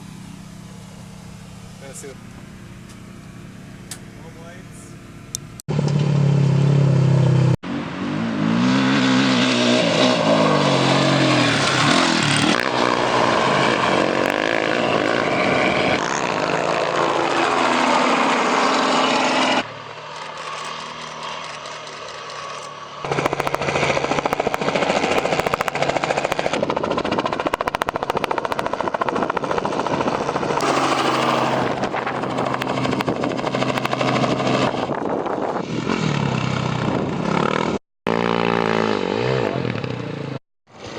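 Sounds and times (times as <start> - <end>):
motorcycle engines revving: 0.6 - 40.9
rushing wind: 22.4 - 37.8.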